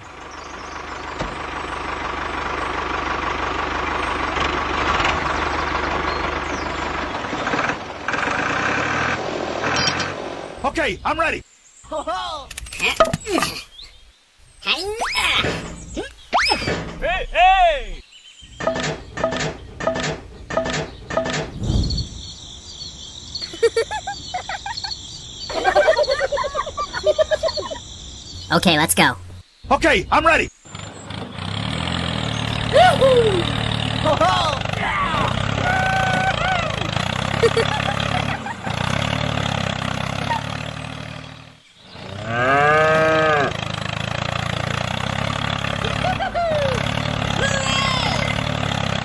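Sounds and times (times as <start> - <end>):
birds chirping: 0.0 - 8.3, 10.6 - 31.5, 35.2 - 44.0, 45.0 - 49.0
tractor engine running: 0.0 - 10.5, 18.6 - 21.6, 30.7 - 42.2, 43.5 - 49.0
cow mooing: 42.2 - 43.6.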